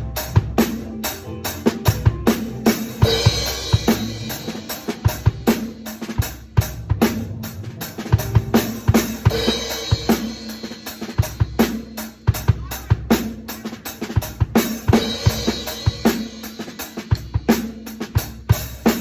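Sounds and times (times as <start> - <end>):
bass drum and snare hits: 0.0 - 13.4.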